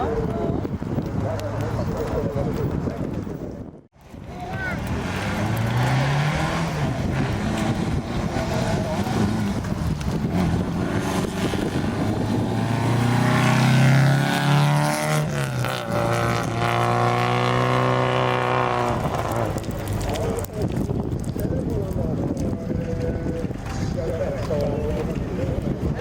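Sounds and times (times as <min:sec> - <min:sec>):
rally car engine at full throttle: 0:04.0 - 0:24.2.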